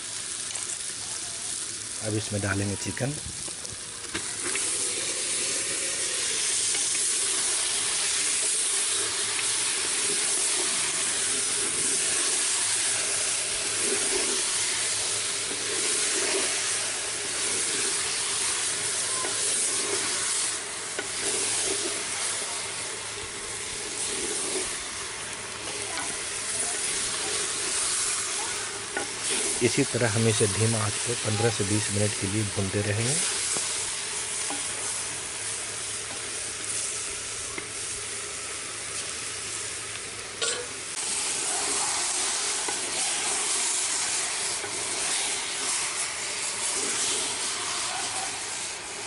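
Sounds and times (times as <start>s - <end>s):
chicken sizzling in hot oil: 0.0s - 49.0s
wooden spatula stirring: 19.2s - 36.8s.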